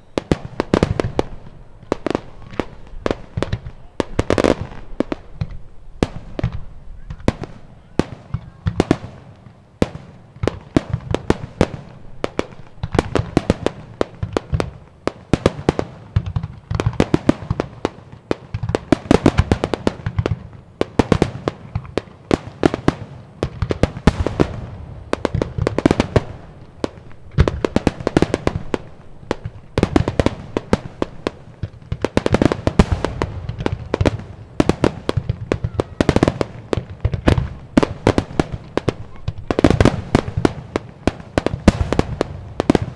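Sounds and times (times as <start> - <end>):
deep rumble of fireworks: 0.0 - 42.9.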